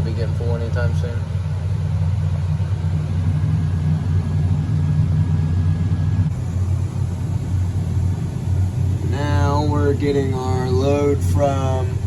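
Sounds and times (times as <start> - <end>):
faint high whine: 0.0 - 12.0
tractor engine running: 0.0 - 12.0.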